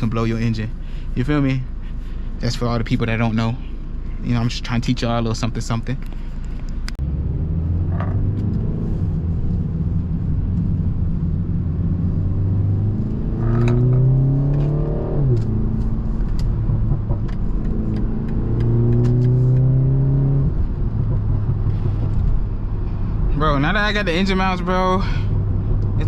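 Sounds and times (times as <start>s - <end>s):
car engine accelerating: 6.0s - 26.0s.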